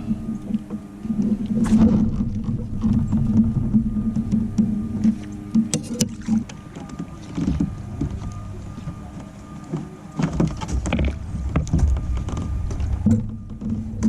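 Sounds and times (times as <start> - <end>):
water slapping kayak hull: 0.0 - 14.0
wind buffeting microphone: 0.0 - 14.0
splashes and rattles: 1.3 - 9.0.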